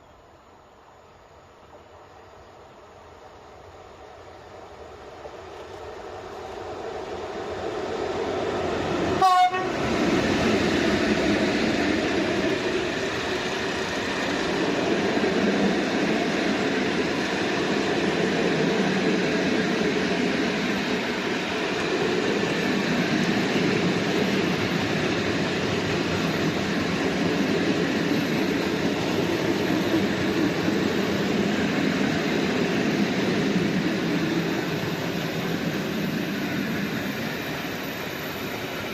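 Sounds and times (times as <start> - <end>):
freight train wheels rolling: 4.5 - 38.9
train horn blast: 9.2 - 9.8.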